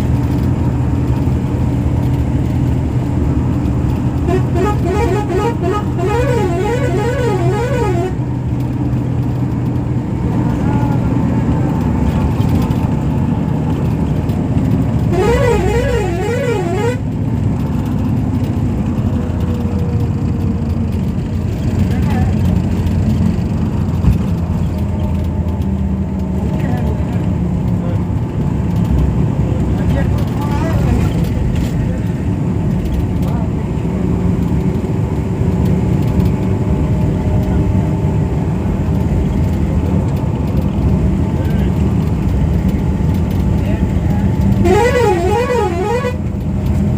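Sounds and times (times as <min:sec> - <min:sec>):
road traffic rumble: 0:00.0 - 0:46.9
warbling horn-like tone: 0:04.3 - 0:08.2, 0:15.1 - 0:17.0, 0:44.6 - 0:46.3.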